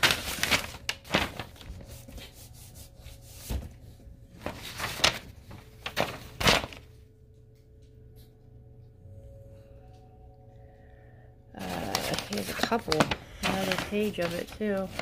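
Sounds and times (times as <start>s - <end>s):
packaging rustling: 0.0s - 2.6s, 4.4s - 6.9s, 11.6s - 15.0s
faint steady hum: 0.0s - 15.0s.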